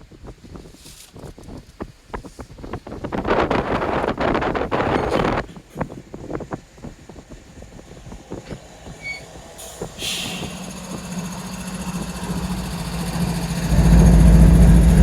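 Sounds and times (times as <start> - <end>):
diesel locomotive engine hum: 2.8 - 15.0
train wheels clicking over rail joints: 4.4 - 15.0
brief hiss: 9.6 - 10.6.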